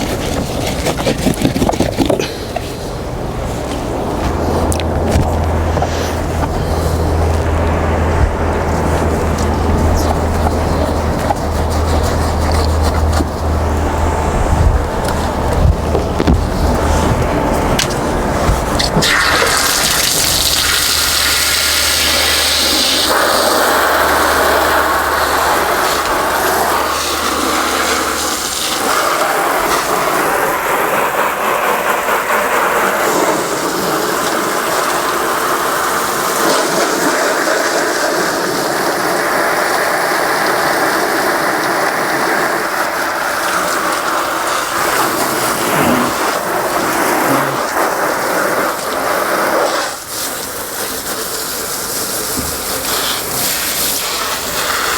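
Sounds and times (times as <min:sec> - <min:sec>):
hose spraying water: 0:00.0 - 0:54.9
low hum: 0:02.8 - 0:21.6.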